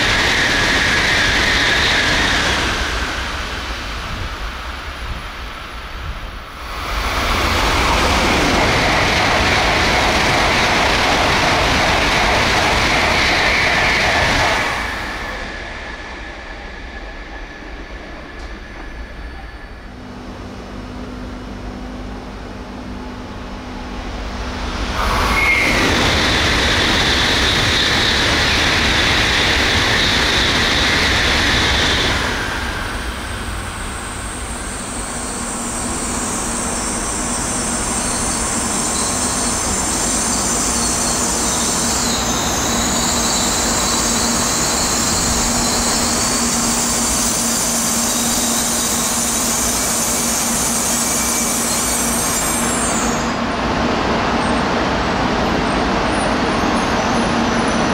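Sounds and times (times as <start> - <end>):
high-speed train rushing roar: 0.0 - 57.9
rushing sound with high whine: 0.0 - 57.9.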